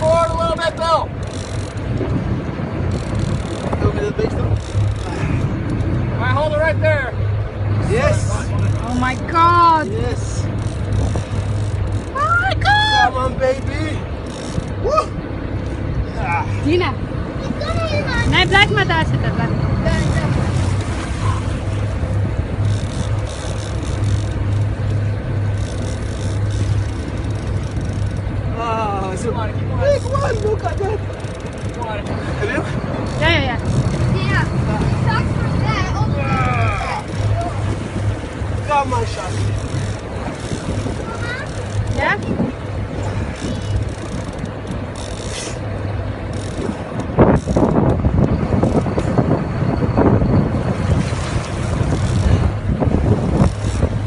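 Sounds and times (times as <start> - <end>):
motorboat engine drone: 0.0 - 54.0
water noise: 0.0 - 54.0
wind: 0.0 - 54.0
wind on microphone: 1.6 - 6.2, 31.2 - 45.0, 45.6 - 54.0
rapid clicking and rattling: 2.9 - 6.0, 22.6 - 28.4, 38.0 - 49.2.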